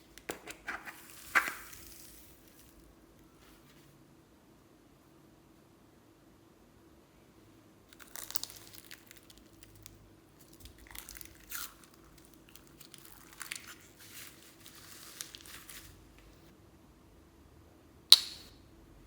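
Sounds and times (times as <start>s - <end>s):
slime crackling being squeezed: 7.9s - 16.0s.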